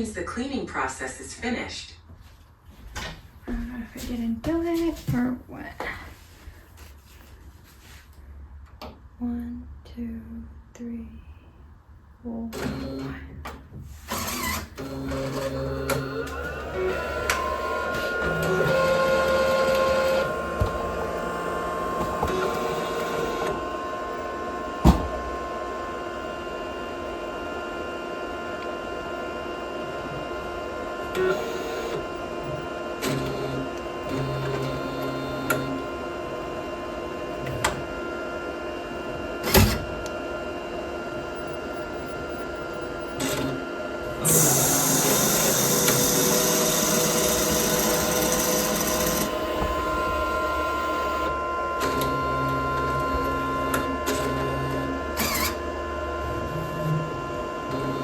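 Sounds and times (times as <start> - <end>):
printer motors whirring: 12.5 - 58.0.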